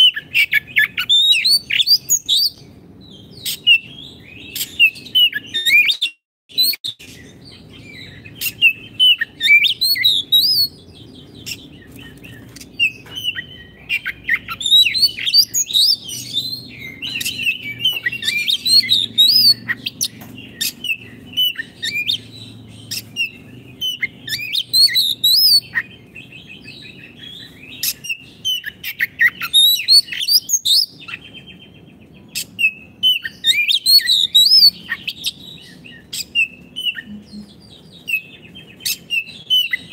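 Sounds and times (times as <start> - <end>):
songbird whistles and trills: 0.0 - 39.9
faint low hum: 34.8 - 39.4.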